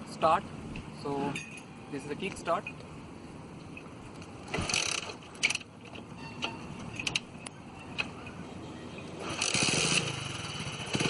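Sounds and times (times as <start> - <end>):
motorcycle engine running: 9.2 - 11.0.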